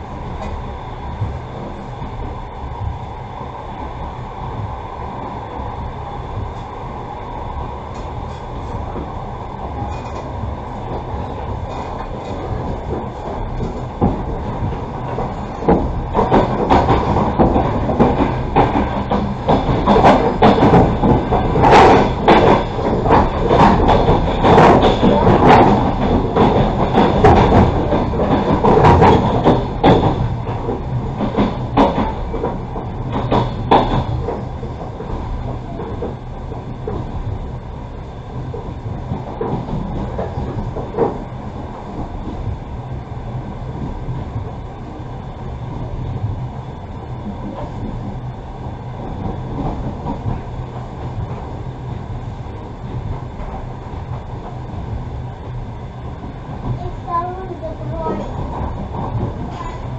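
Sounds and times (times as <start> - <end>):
train wheels rumbling on rails: 0.0 - 59.9
sharp knocks and clatter: 13.6 - 35.2.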